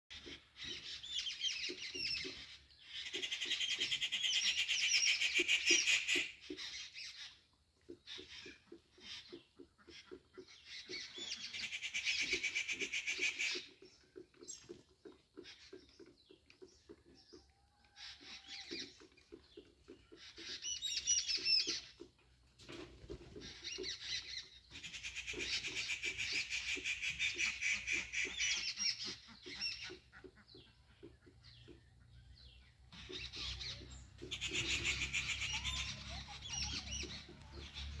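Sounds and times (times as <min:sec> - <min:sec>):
birds chirping and twittering: 0:00.1 - 0:38.0.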